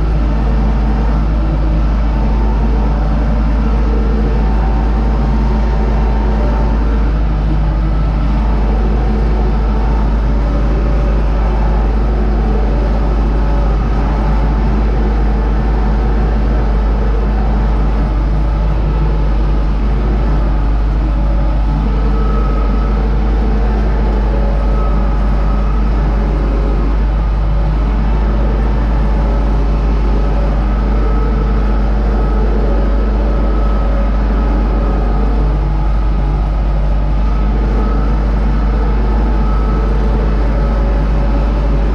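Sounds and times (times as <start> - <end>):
tractor diesel engine droning: 0.0 - 41.9.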